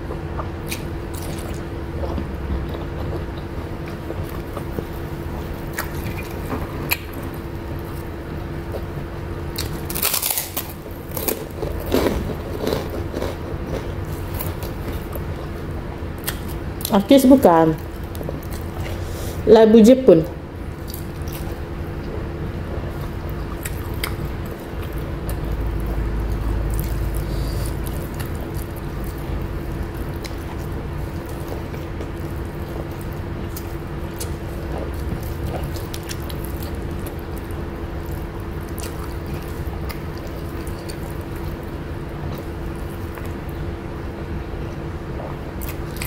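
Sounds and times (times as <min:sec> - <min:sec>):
person chewing: 0:00.0 - 0:17.0, 0:17.8 - 0:19.4, 0:20.7 - 0:43.6, 0:45.1 - 0:46.0
steady low hum: 0:00.0 - 0:46.0
low rumble: 0:22.1 - 0:33.2.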